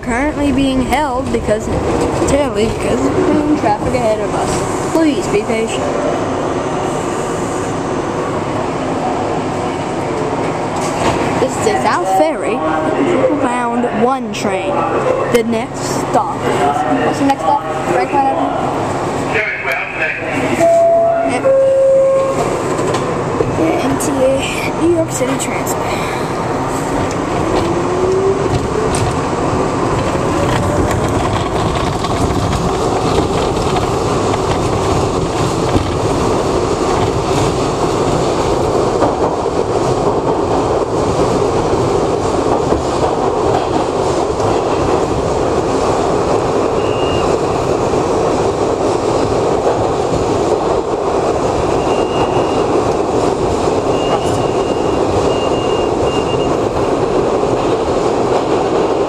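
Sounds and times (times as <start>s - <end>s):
subway train wheels rumbling: 0.0s - 59.0s
high wheel squeals: 51.8s - 52.7s, 53.8s - 56.5s.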